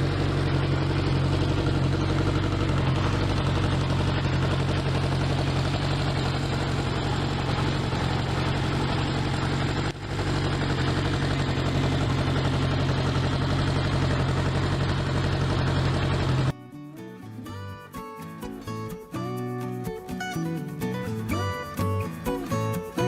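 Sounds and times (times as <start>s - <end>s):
motorcycle engine idling: 0.0s - 16.6s.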